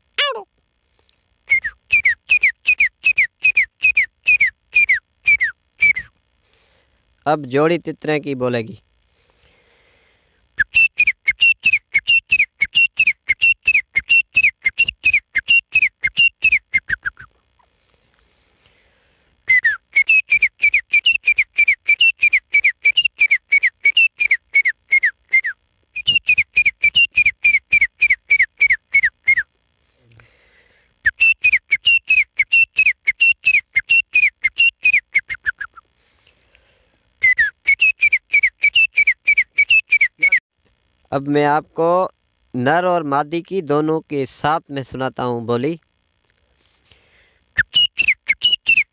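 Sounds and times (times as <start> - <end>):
man whistling bird calls: 1.5 - 6.2, 10.6 - 17.3, 19.4 - 29.5, 31.0 - 35.9, 37.2 - 40.4, 47.6 - 48.9.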